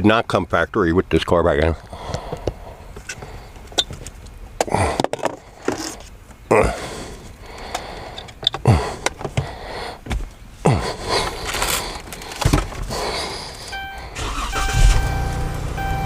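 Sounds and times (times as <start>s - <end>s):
steady electronic tone: 13.7s - 16.0s.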